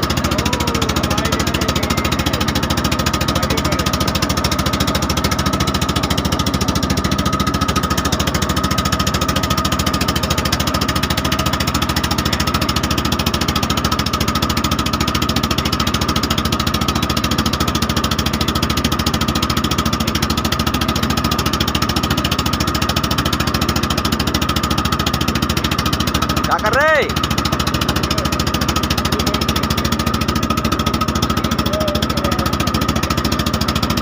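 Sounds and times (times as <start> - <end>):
motorboat engine knocking: 0.0 - 34.0.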